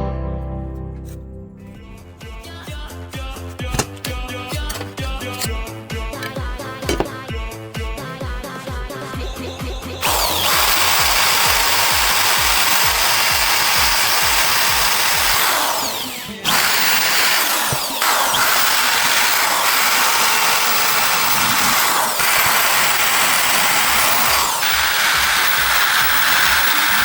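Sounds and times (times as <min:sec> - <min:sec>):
power tool running at high speed: 0:03.7 - 0:05.5, 0:10.0 - 0:27.0.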